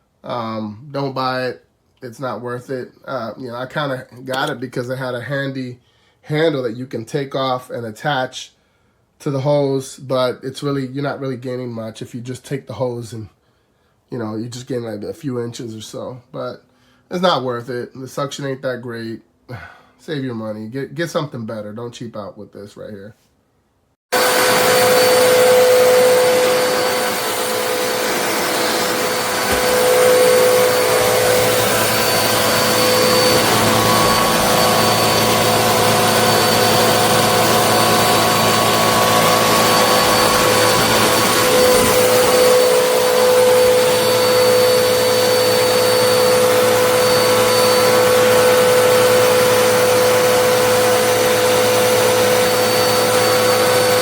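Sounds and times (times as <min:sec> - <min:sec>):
vacuum cleaner running: 0:04.3 - 0:04.6, 0:24.1 - 0:54.0.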